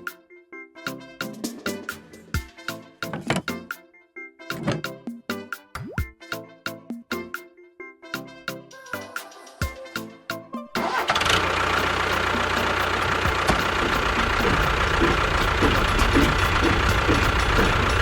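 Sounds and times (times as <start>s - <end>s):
plucked cartoon music notes: 4.4s - 8.3s
vehicle engine starting and running: 10.8s - 18.0s.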